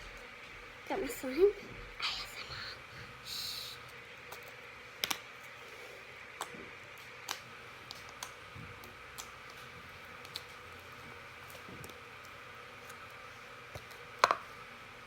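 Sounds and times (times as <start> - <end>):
faint steady hum: 0.0 - 15.0
plastic items clicking and tapping: 13.7 - 14.5.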